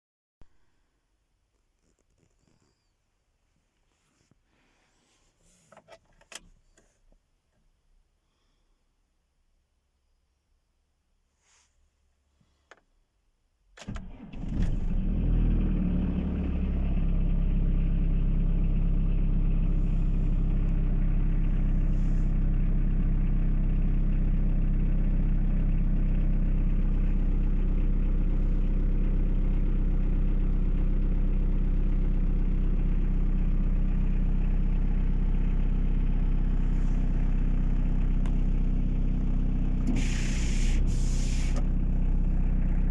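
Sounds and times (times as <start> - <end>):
diesel engine starting and idling: 13.8 - 42.9
short hiss: 39.9 - 41.6.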